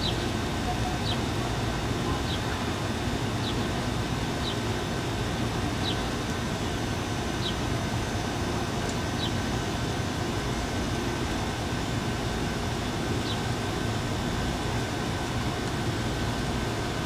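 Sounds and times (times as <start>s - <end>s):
bird chirping: 0.0s - 1.3s, 9.2s - 9.4s.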